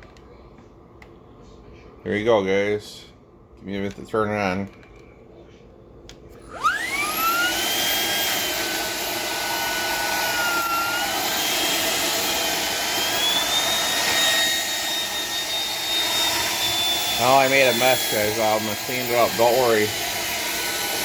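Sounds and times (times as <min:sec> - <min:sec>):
vacuum cleaner motor whine: 0:06.3 - 0:21.0.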